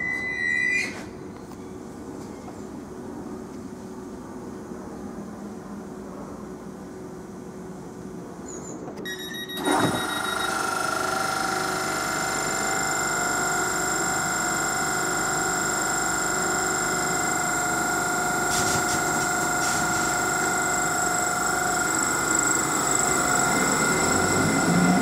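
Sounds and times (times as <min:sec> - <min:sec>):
electric train whine: 0:09.1 - 0:25.0.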